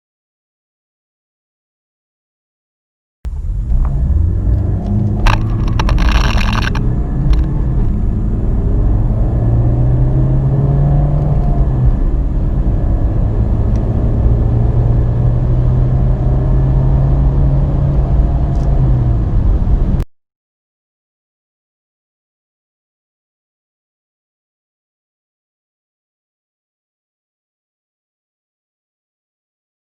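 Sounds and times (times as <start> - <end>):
car engine accelerating: 3.3 - 20.0
brief clattering noise: 4.9 - 7.5.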